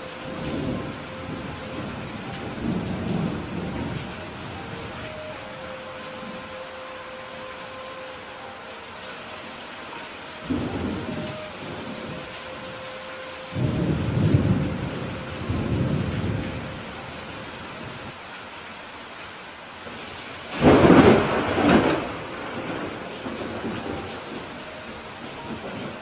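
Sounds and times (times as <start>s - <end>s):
thunder rumbles: 0.0s - 5.1s, 10.4s - 12.7s, 13.5s - 18.1s, 20.5s - 26.0s
steady rain: 0.0s - 26.0s
loud thunderclap: 20.5s - 23.8s.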